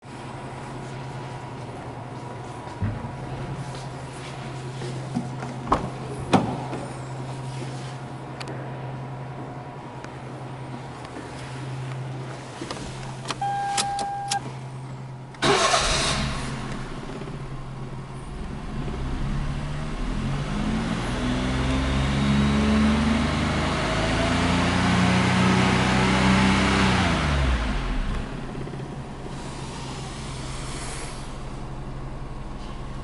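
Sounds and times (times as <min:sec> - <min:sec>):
car engine idling and revving: 0:10.2 - 0:33.0
short beep: 0:13.4 - 0:14.4.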